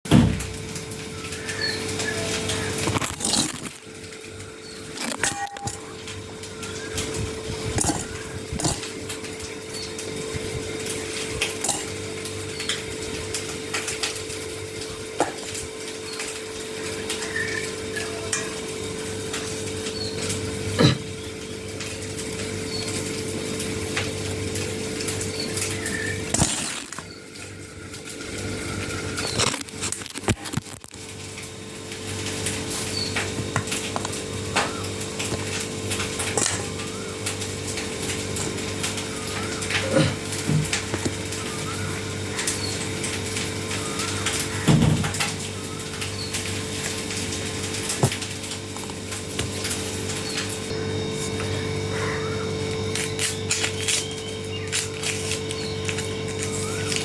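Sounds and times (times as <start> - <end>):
steady hum: 0.1 - 57.0
utensils clinking against dishes: 4.8 - 10.1, 10.8 - 14.5, 25.0 - 28.1, 32.4 - 52.1.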